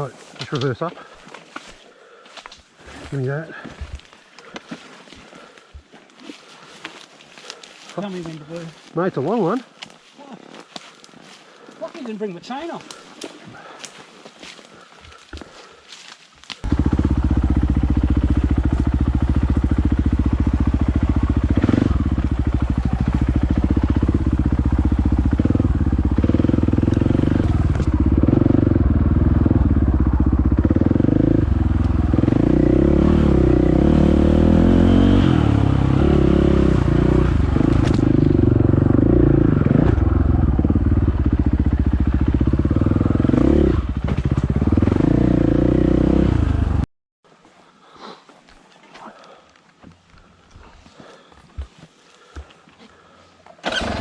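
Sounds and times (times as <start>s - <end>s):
dirt bike engine revving: 16.6s - 46.8s, 53.6s - 54.0s.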